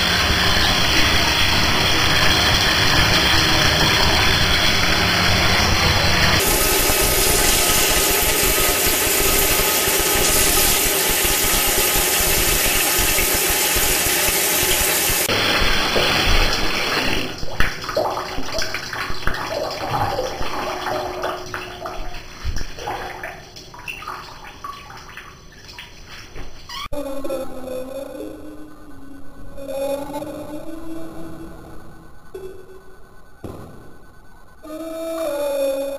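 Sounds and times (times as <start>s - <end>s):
bathwater splashing and sloshing: 14.6s - 26.8s.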